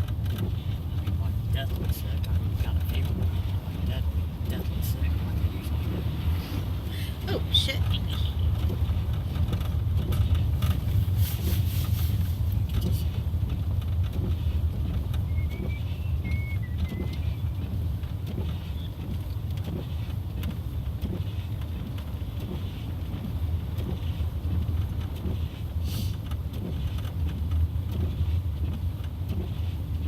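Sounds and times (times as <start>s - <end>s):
car engine and tyres rumbling: 0.0s - 30.0s.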